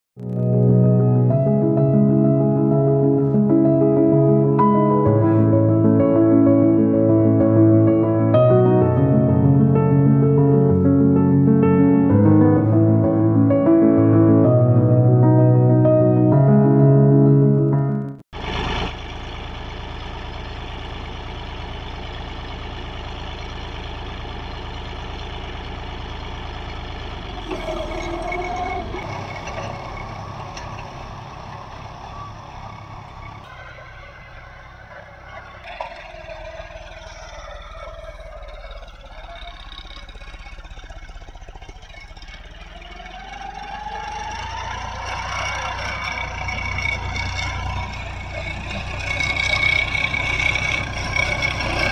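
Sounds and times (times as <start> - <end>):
tractor engine running: 18.3 - 51.9.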